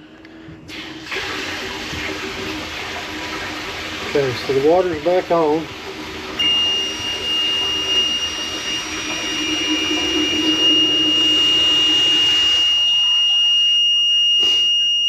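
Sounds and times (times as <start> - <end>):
water rushing: 1.0 - 12.5
high-pitched alarm tone: 6.4 - 15.0.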